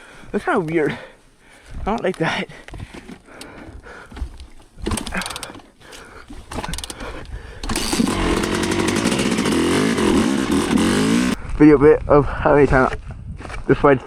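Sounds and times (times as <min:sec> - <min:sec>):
dirt bike engine revving: 0:07.6 - 0:11.4.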